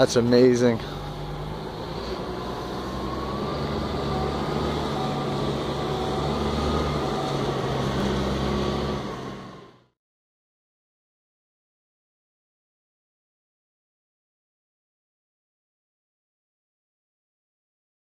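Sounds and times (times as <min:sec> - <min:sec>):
diesel truck engine idling: 0:00.0 - 0:09.9.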